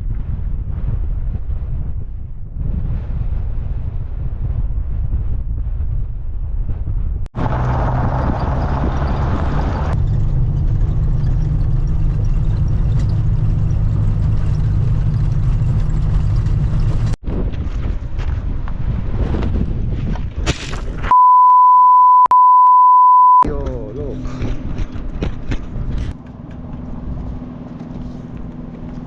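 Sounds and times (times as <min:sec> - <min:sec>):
wind noise: 0:00.0 - 0:21.1, 0:24.2 - 0:29.0
van engine running: 0:07.4 - 0:17.2.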